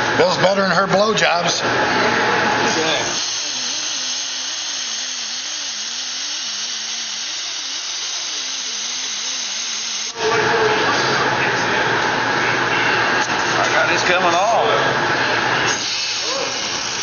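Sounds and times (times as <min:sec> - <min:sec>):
angle grinder grinding: 0:01.6 - 0:11.5, 0:15.2 - 0:17.0.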